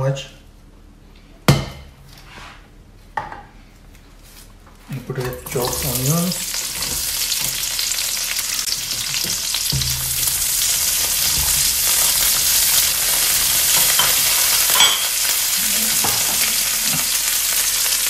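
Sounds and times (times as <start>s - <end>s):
onion sizzling in hot oil: 5.4s - 18.0s.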